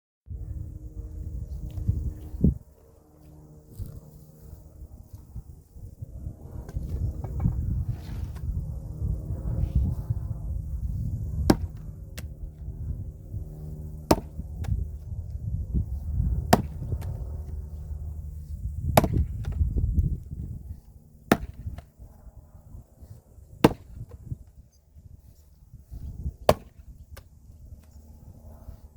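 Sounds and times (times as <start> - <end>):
low steady hum: 0.3 - 28.9
axe splitting wood: 11.5 - 12.3, 14.0 - 14.8, 16.5 - 17.1, 19.0 - 19.6, 21.3 - 21.8, 23.6 - 24.1, 26.5 - 26.8.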